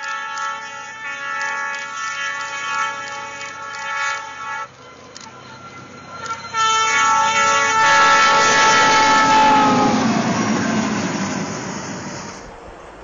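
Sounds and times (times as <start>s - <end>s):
locomotive horn chord: 0.0s - 4.8s, 6.2s - 10.7s
train rushing through snow: 0.0s - 13.0s.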